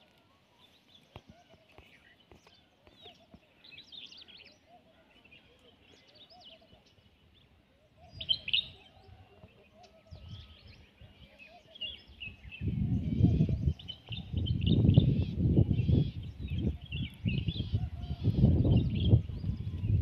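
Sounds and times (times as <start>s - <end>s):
wild birds chirping: 0.0s - 20.0s.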